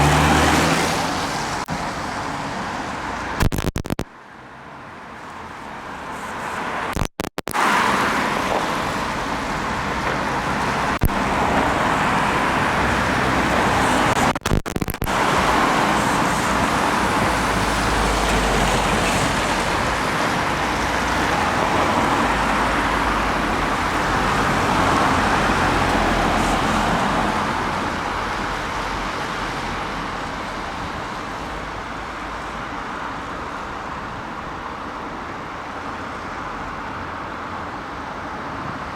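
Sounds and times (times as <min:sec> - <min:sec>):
tyres and engines of passing vehicles: 0:00.0 - 0:38.9.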